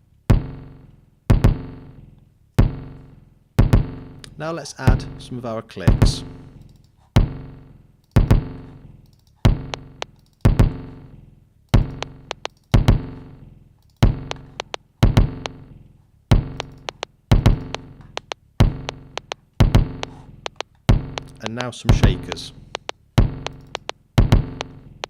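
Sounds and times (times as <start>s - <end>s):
heavy kick drum hits: 1.3s - 1.8s, 2.6s - 2.9s, 3.6s - 4.1s, 7.2s - 7.4s, 8.2s - 8.6s, 9.5s - 9.8s, 10.5s - 10.9s, 12.8s - 13.2s, 15.0s - 15.5s, 17.3s - 17.8s, 19.6s - 20.0s, 20.9s - 21.2s
short sharp high clicks: 16.6s - 19.4s.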